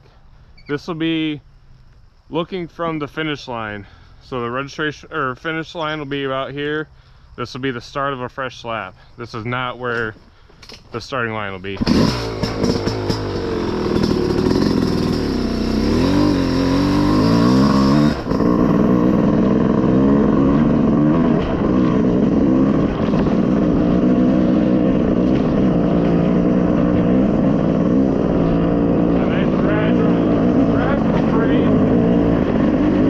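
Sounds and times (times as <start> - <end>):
off-road vehicle engine revving: 11.7 - 33.0.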